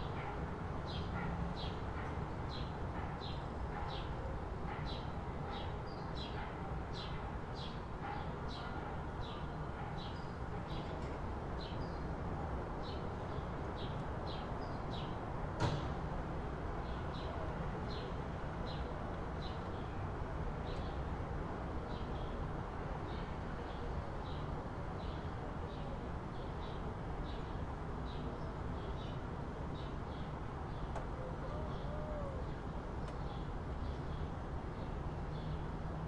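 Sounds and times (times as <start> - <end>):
distant city rumble: 30.4 - 36.0.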